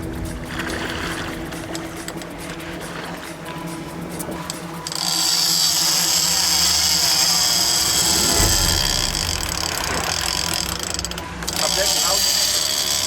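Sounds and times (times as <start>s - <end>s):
fishing reel buzzing: 0.0s - 13.0s
low rumble: 7.5s - 11.4s.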